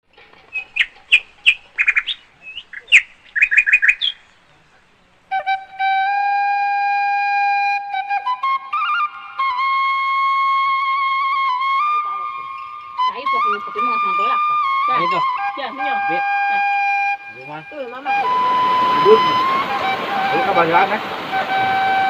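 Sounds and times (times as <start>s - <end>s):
birds chirping: 0.0s - 6.6s, 7.3s - 22.0s
flute playing slow notes: 5.3s - 22.0s.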